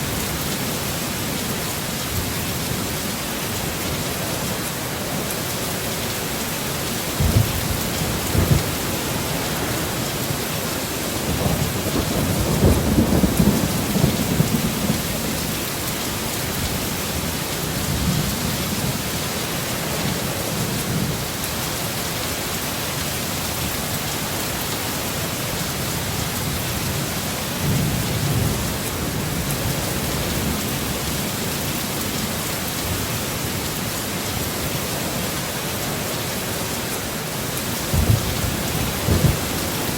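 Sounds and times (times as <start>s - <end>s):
heavy rain falling: 0.0s - 39.9s
rolling thunder: 7.1s - 19.0s, 37.9s - 39.9s.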